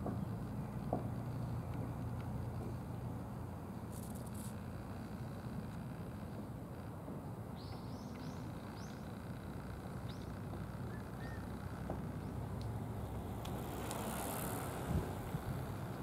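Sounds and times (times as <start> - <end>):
low outdoor rumble: 0.0 - 16.0
small bird chirping: 10.0 - 11.5.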